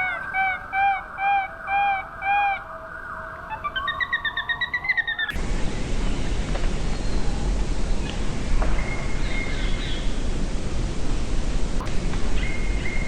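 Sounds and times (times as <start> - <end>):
steady hiss: 5.3 - 13.0.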